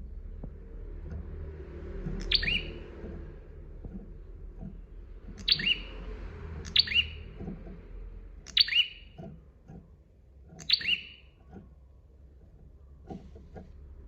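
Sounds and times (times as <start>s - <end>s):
low steady hum: 0.0s - 14.0s
bird double chirp calls: 2.2s - 2.8s, 5.4s - 6.0s, 6.6s - 7.3s, 8.4s - 9.2s, 10.6s - 11.3s.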